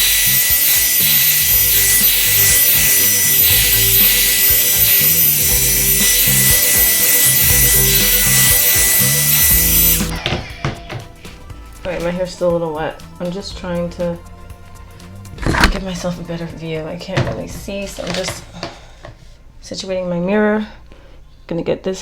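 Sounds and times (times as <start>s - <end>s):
hair dryer running: 0.0s - 10.3s.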